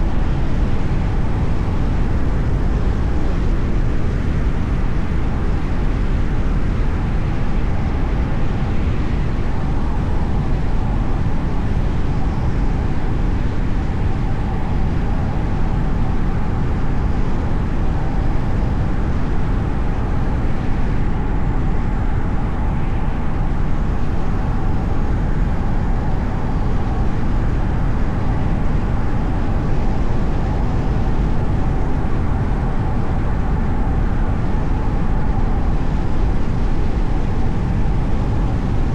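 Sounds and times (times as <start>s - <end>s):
car road and engine noise: 0.0s - 38.9s
faint steady whine: 0.0s - 38.9s.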